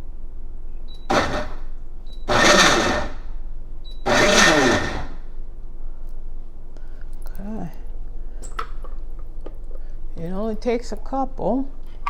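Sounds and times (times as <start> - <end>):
blender pulsing: 1.1 - 1.6, 2.3 - 3.2, 4.1 - 5.2.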